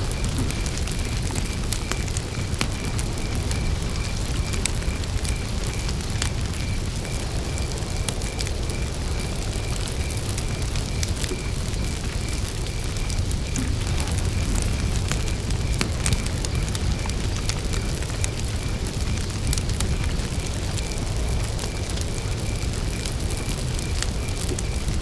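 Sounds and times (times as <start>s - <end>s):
campfire crackling: 0.0s - 25.0s
cricket chirping: 0.0s - 25.0s.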